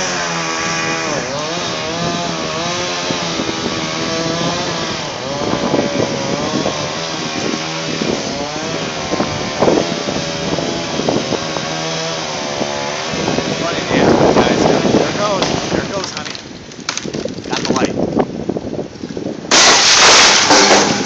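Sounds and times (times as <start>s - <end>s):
chainsaw running: 0.0s - 17.8s, 19.5s - 21.0s.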